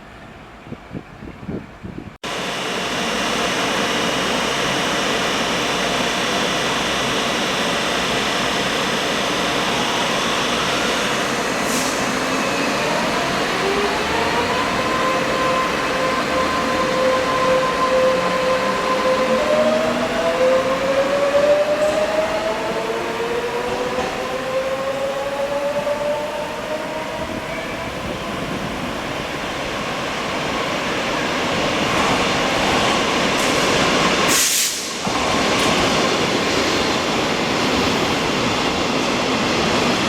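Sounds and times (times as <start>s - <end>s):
brief hiss: 11.6s - 12.1s, 33.4s - 35.7s.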